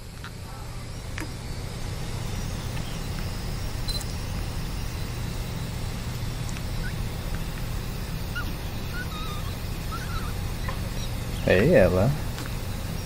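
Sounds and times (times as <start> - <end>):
steady low hum: 0.0 - 13.0
newborn baby squeaks: 8.4 - 11.5.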